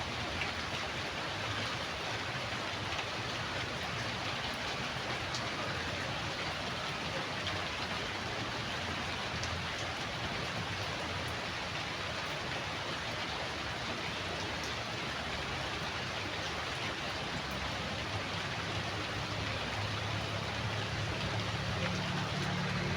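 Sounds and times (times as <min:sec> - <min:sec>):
steady rainfall: 0:00.0 - 0:22.9
faint raindrop ticks: 0:02.9 - 0:06.5, 0:08.7 - 0:13.3.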